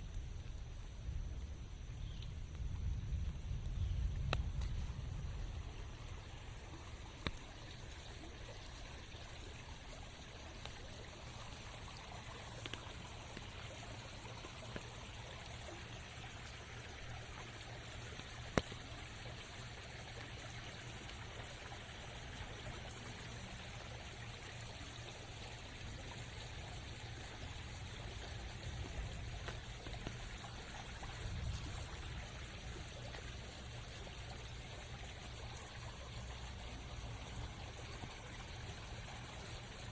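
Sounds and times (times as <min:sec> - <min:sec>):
steady rain in forest: 0:00.0 - 0:39.9.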